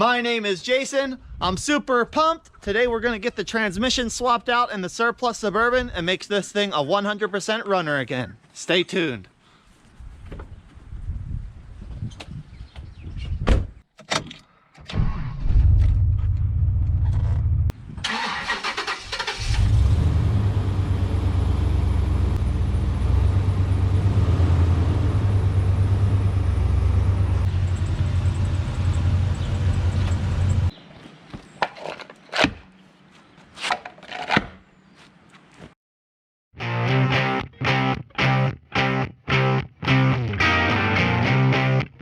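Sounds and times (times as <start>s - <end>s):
car engine cranking: 18.0s - 21.4s
car engine running: 19.7s - 30.7s.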